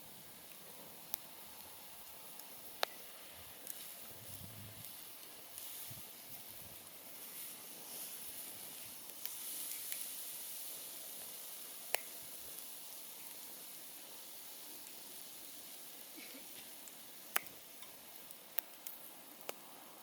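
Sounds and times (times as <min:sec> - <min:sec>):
campfire hissing and crackling: 0:00.0 - 0:20.0
sharp pop from fire: 0:02.8 - 0:03.8, 0:11.9 - 0:12.2, 0:16.6 - 0:18.0.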